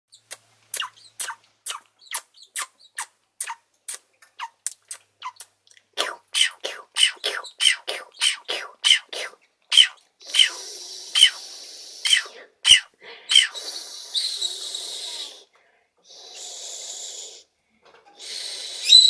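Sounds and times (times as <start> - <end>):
parrot chirping: 0.1 - 14.8.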